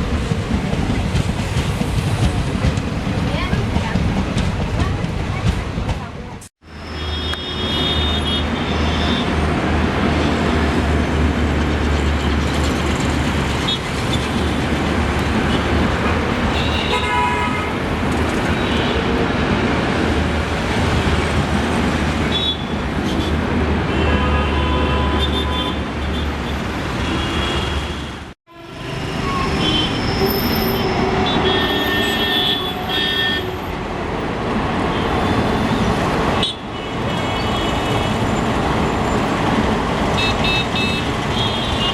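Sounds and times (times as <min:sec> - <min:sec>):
train running by: 0:00.0 - 0:24.0, 0:28.5 - 0:41.8
train horn toots: 0:16.5 - 0:17.8, 0:28.5 - 0:33.7.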